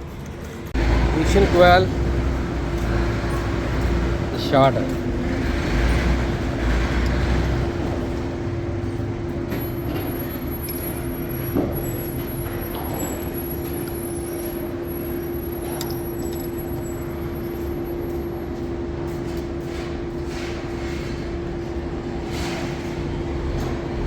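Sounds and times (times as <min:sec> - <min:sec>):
mechanical hum with low rumble: 0:00.0 - 0:24.0.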